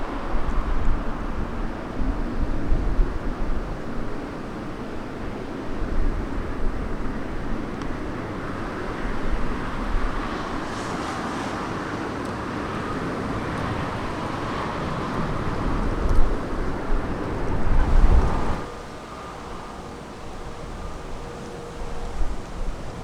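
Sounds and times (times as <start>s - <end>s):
wind buffeting microphone: 0.0s - 18.8s
jet noise of landing airliner: 0.0s - 23.0s.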